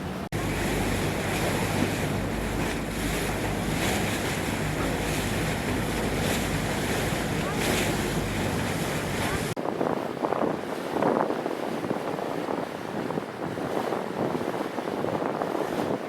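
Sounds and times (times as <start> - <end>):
water rushing: 0.0 - 10.7
wind buffeting microphone: 0.0 - 16.0.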